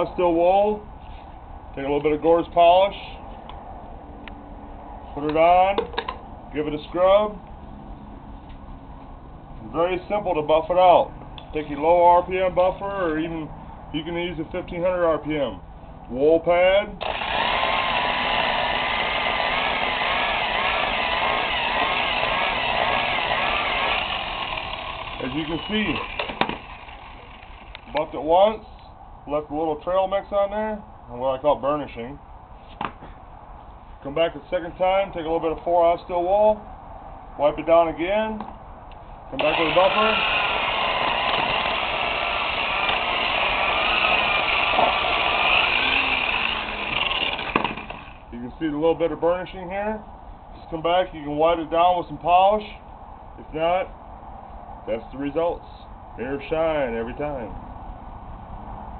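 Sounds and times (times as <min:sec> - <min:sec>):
electric buffer motor whine: 0:17.0 - 0:27.9, 0:39.4 - 0:48.3.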